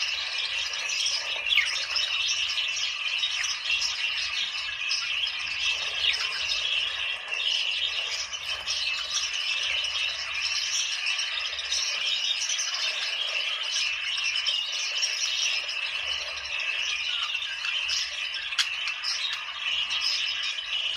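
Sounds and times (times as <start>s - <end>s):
budgerigars chattering: 0.0s - 20.9s.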